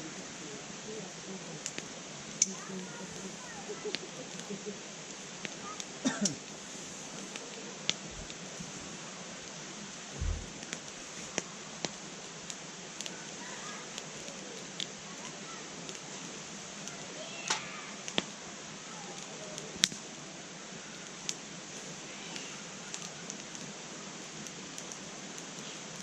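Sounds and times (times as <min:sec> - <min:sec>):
wood fire crackling: 0:00.0 - 0:26.0
dull thump: 0:10.2 - 0:10.6.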